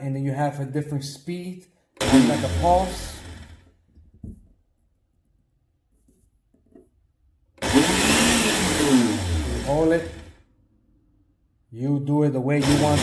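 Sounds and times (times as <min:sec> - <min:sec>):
blender motor running: 0:02.0 - 0:03.7, 0:07.6 - 0:10.4, 0:12.6 - 0:13.0.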